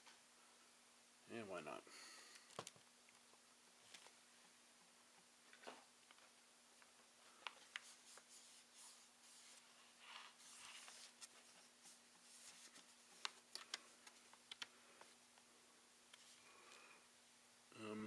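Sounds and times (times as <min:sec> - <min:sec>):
rustling: 0:05.4 - 0:17.0.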